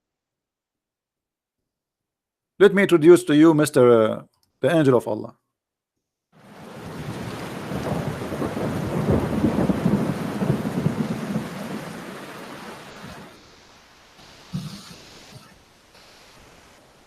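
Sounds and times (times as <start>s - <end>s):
thunder rumbling: 6.4s - 13.4s
rain: 6.4s - 17.0s.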